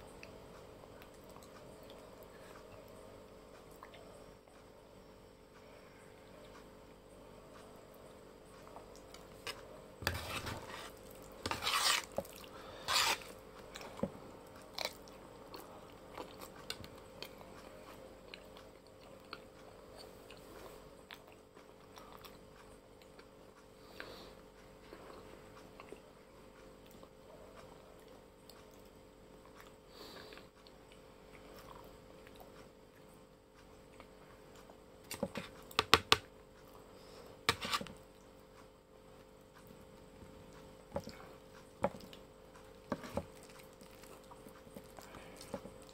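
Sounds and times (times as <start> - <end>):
metal spoon scraping plate: 10.1 - 12.1, 12.9 - 13.3
chewing noodles: 40.5 - 45.9.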